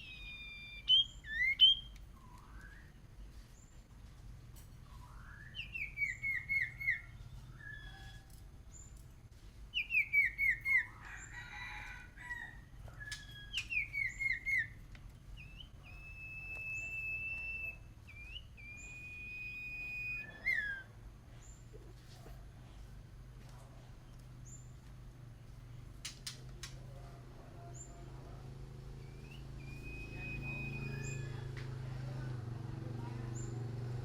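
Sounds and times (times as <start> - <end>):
songbird whistling: 0.0 - 3.0, 4.9 - 8.4, 9.7 - 11.2, 13.0 - 14.8, 15.4 - 21.0, 29.0 - 31.5.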